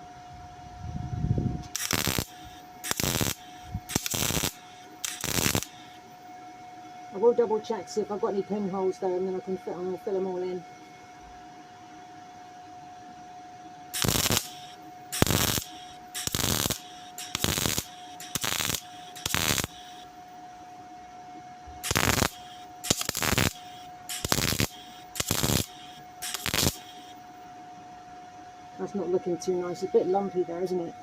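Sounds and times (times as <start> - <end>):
thin steady hum: 0.0 - 31.0
welder crackling bursts: 1.7 - 6.0, 13.9 - 20.1, 21.8 - 27.2.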